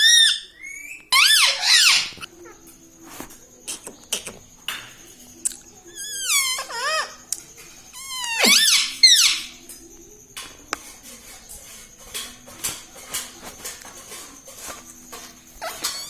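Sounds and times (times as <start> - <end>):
parrot squawking: 0.0 - 2.3, 6.0 - 7.3, 8.0 - 9.6
faint parrot chatter: 0.0 - 13.4, 15.1 - 16.0.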